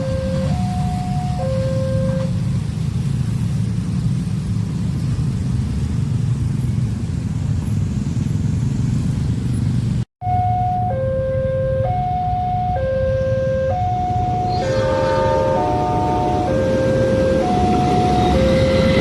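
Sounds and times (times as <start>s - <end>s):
two-tone crossing warning signal: 0.0s - 2.5s, 10.2s - 19.0s
train rumbling past: 0.0s - 10.0s, 11.8s - 19.0s.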